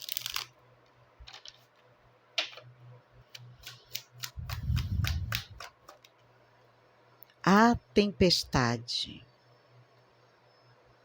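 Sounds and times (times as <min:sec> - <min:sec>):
cards clicking and snapping: 0:03.6 - 0:06.1.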